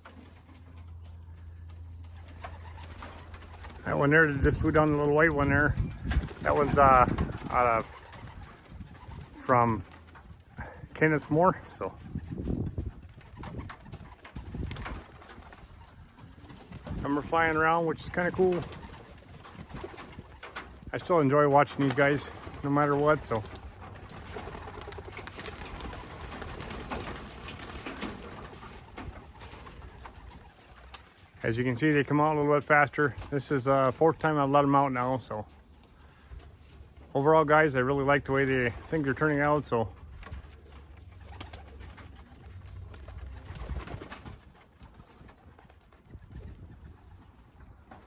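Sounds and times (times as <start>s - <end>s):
clicks and wing flutters: 0.0s - 10.5s, 11.9s - 31.5s
pigeons cooing: 0.0s - 31.4s, 38.0s - 48.0s
wind rumble on microphone: 4.2s - 21.0s, 46.0s - 47.9s.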